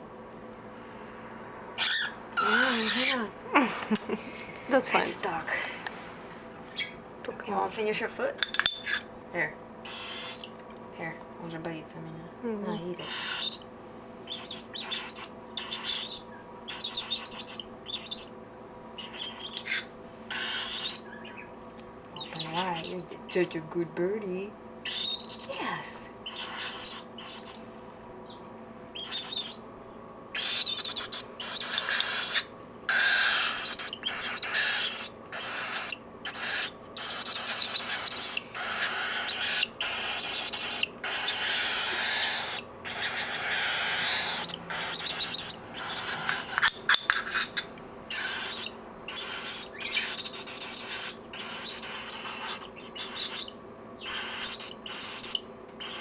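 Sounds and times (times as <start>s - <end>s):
baby cockatiel begging calls: 1.8s - 3.3s, 9.8s - 10.5s, 12.7s - 13.7s, 14.3s - 18.3s, 19.0s - 21.5s, 22.2s - 23.0s, 24.8s - 27.6s, 29.0s - 29.6s, 30.3s - 56.0s.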